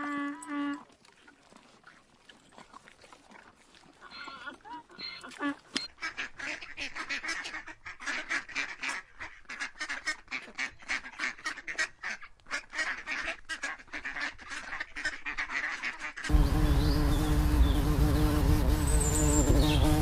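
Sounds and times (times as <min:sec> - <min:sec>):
ducks quacking rapidly: 0:05.4 - 0:17.6.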